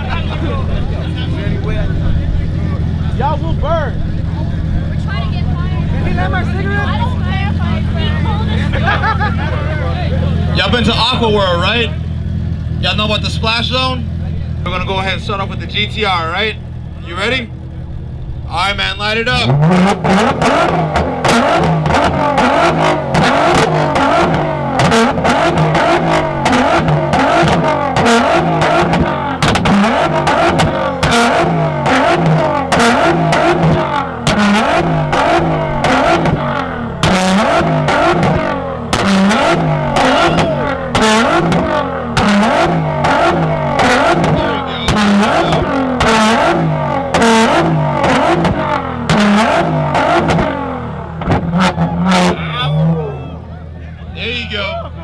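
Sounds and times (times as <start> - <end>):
car engine revving on limiter: 0.0 - 55.0
exhaust pops and bangs: 17.6 - 53.0.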